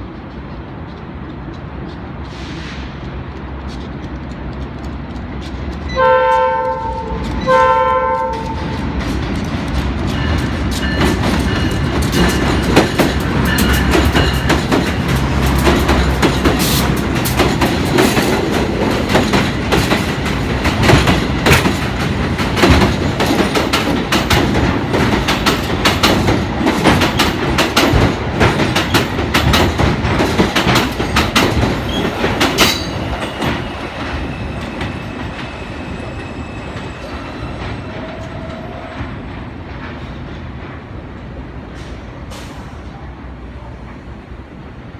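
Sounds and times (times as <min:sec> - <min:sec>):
train wheels clacking over rail joints: 0:00.0 - 0:41.0
train horn blasts: 0:05.9 - 0:08.9.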